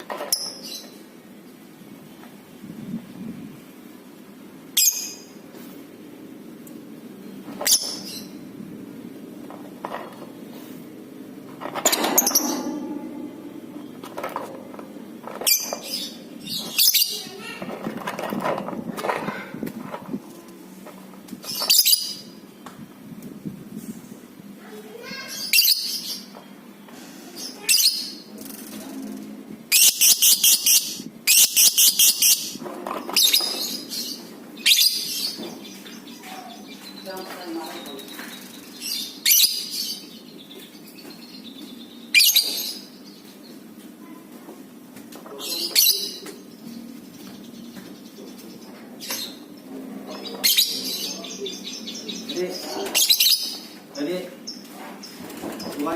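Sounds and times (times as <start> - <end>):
steady low hum: 8.2 - 16.7
lovebird chirping: 29.7 - 32.6.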